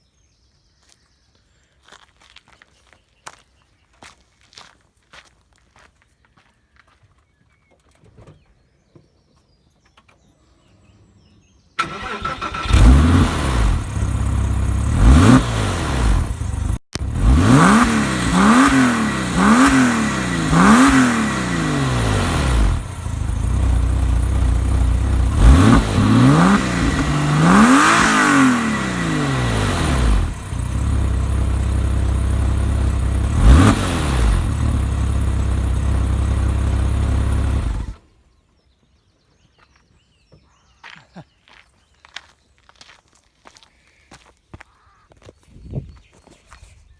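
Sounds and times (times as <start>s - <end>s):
car engine idling with throttle blips: 11.8s - 38.0s
car engine starting: 11.8s - 38.0s.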